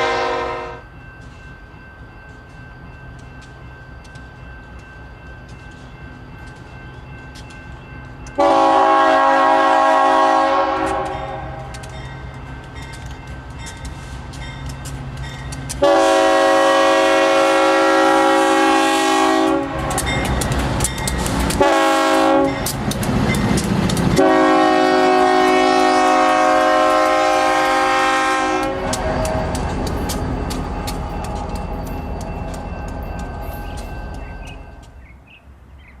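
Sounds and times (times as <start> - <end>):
train air horn blasts: 0.0 - 0.9, 8.4 - 11.9, 15.8 - 20.1, 21.5 - 22.7, 24.1 - 29.5
wheels clattering on rails: 0.9 - 9.0, 9.8 - 35.2
locomotive engine rumble: 1.7 - 35.3.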